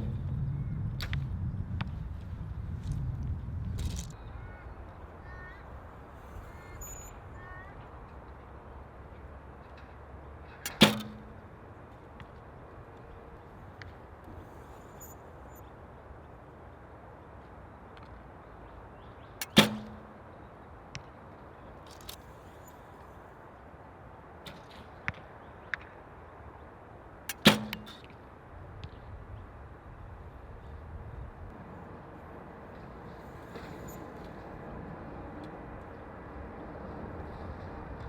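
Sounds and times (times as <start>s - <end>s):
wind noise: 0.0s - 8.1s, 28.5s - 38.0s
small click: 10.7s - 11.3s, 19.4s - 20.0s, 27.3s - 28.1s
bow shot string crack: 10.7s - 11.4s, 19.4s - 20.2s, 27.3s - 28.0s.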